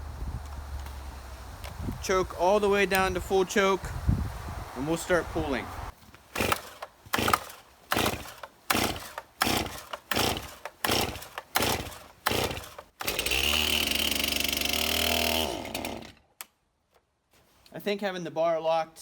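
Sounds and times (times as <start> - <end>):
chainsaw engine running and stalling: 6.3 - 16.2
recoil starter pulls: 6.4 - 16.2.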